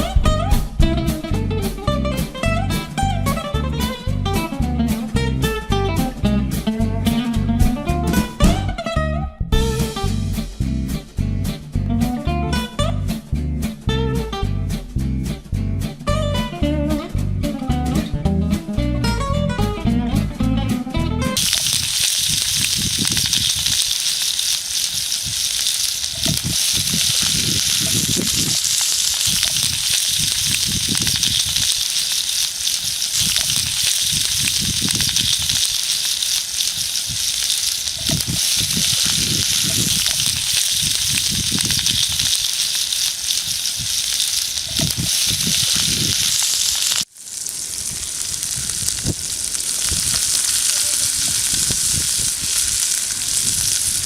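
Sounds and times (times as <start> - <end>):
food sizzling in a skillet: 21.4 - 54.0.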